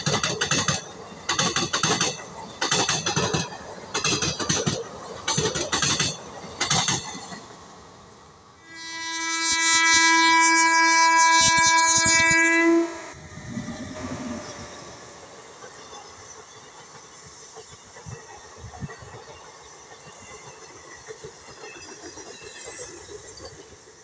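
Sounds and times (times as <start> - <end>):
train wheels clattering over rail joints: 0.0 - 7.6, 15.5 - 24.0
locomotive horn blast: 8.6 - 13.2.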